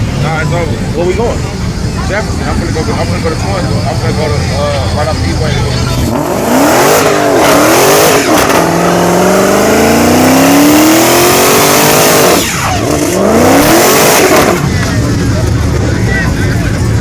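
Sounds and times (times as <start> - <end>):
car engine revving hard: 5.9 - 15.2.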